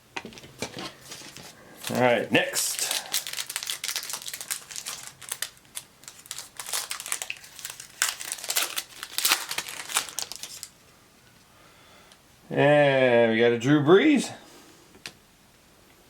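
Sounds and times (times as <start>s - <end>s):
card pack wrapper tearing and crinkling: 1.8s - 10.7s.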